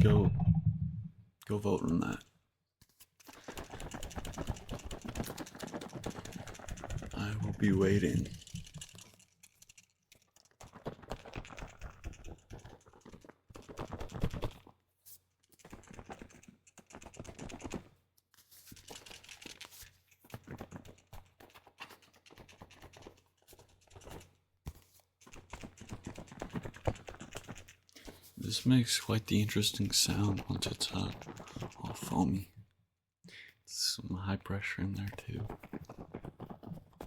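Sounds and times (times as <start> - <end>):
crackling clicking foamy liquid: 29.2 - 32.4.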